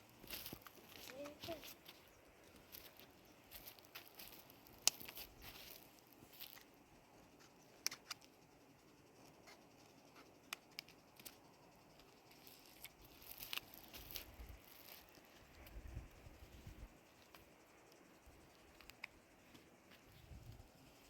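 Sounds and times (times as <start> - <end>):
faint clicks and taps: 0.3 - 5.8.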